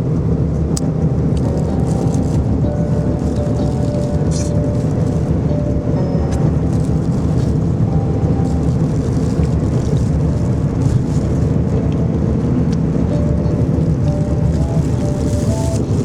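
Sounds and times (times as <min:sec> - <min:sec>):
moving vehicle rumble: 0:00.0 - 0:16.0.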